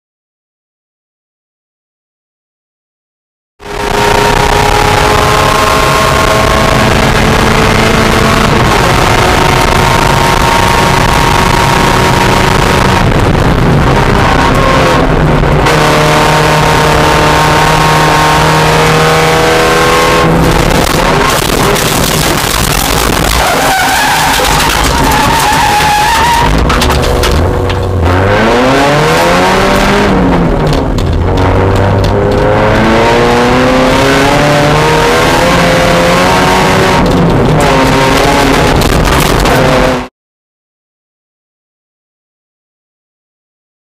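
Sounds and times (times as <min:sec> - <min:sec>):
race car engine revving high: 0:03.6 - 0:40.1
road noise: 0:03.6 - 0:40.1
wind noise: 0:03.7 - 0:40.0.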